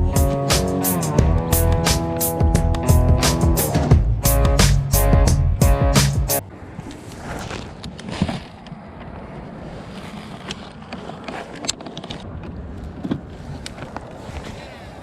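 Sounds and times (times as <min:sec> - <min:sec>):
wind: 0:00.0 - 0:15.0
water noise: 0:06.4 - 0:15.0
light knocks and clicks from boat: 0:11.3 - 0:14.9.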